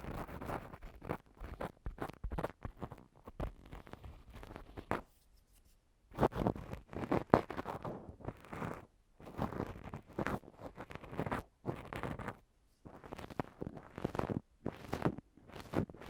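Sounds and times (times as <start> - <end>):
ear pick scratching microphone: 0.0 - 5.1, 6.1 - 16.0.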